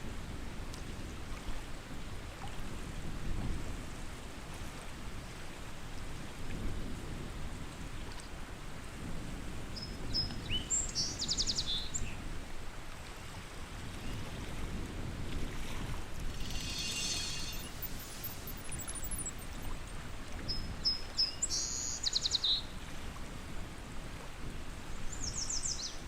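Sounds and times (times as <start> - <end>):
songbird calling: 16.4 - 19.8, 20.5 - 22.6.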